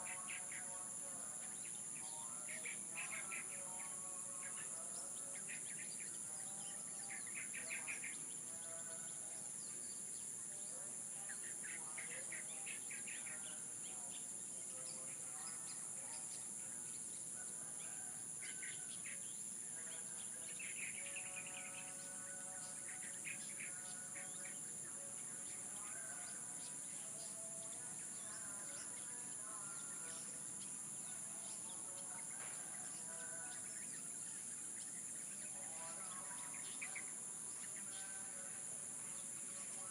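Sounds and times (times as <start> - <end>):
birds chirping: 0.0 - 39.9
high insect drone: 0.0 - 39.9.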